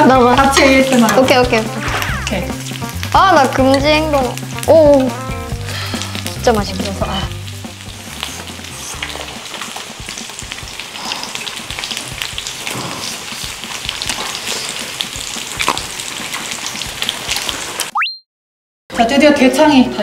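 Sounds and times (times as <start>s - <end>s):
meat sizzling on a griddle: 0.0s - 17.9s
chewing and crunching food: 8.2s - 17.6s.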